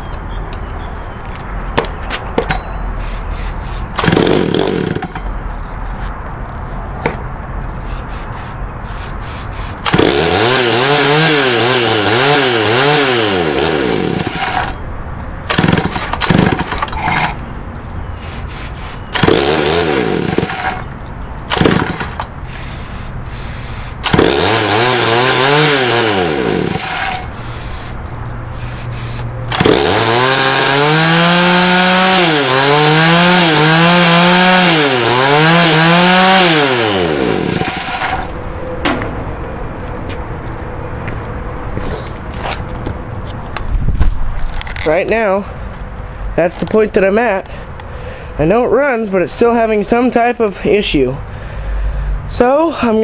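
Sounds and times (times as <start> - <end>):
chainsaw idling and revving: 4.0 - 5.2, 9.9 - 14.8, 15.5 - 16.7, 19.2 - 20.8, 21.6 - 22.2, 24.1 - 27.3, 29.5 - 38.4.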